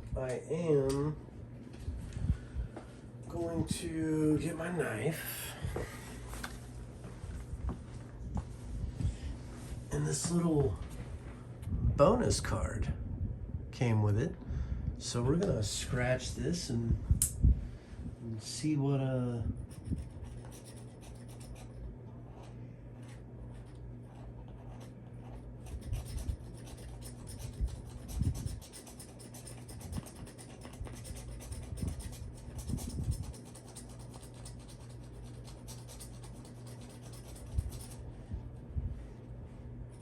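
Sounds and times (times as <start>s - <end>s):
scraping scratch card: 19.7s - 38.0s.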